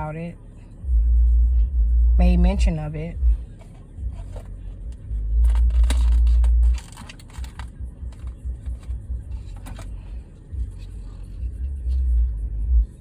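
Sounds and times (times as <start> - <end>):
car engine rumble from inside: 0.0 - 13.0
phone handling clicks and rustling: 3.6 - 11.3.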